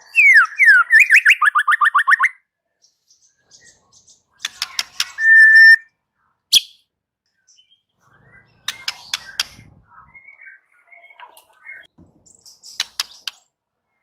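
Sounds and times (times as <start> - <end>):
bird singing clicks and whistles: 4.4 - 5.8, 8.6 - 13.6.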